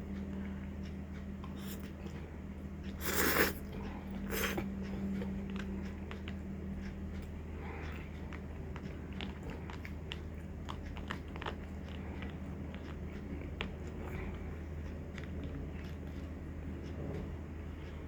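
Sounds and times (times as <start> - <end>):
person chewing food: 0.0 - 18.0
steady low hum: 0.0 - 18.0.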